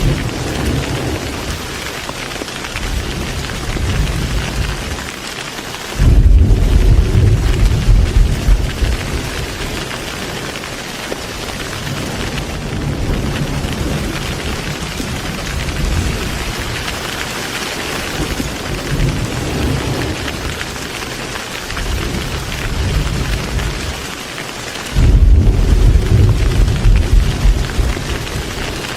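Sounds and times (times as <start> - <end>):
low thunder rumbling: 0.0 - 5.1, 6.0 - 10.5, 11.5 - 17.1, 18.0 - 20.9, 21.7 - 24.2, 24.9 - 28.9
heavy rain: 0.0 - 28.9.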